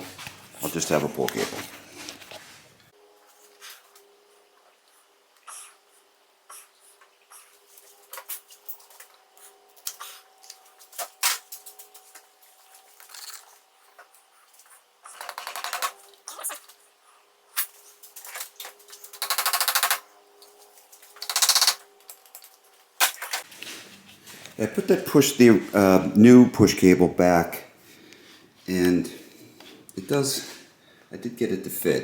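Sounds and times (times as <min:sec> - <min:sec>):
clicks and knocks of hand work: 0:15.1 - 0:16.7
rapid ratcheting clicks: 0:15.2 - 0:15.9, 0:19.1 - 0:20.0, 0:21.2 - 0:21.8.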